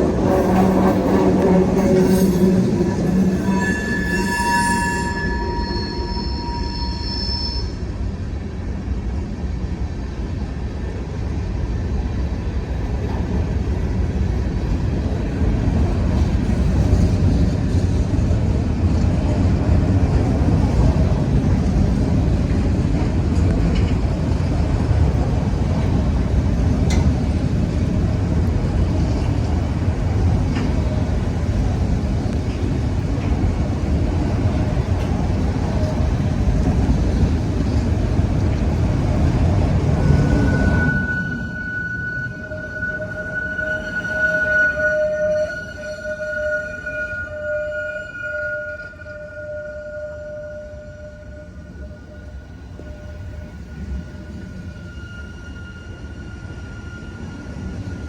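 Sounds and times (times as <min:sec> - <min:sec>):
freight train rumbling on rails: 0:00.0 - 0:58.0
ringing wheel squeal: 0:00.4 - 0:07.8, 0:39.8 - 0:58.0.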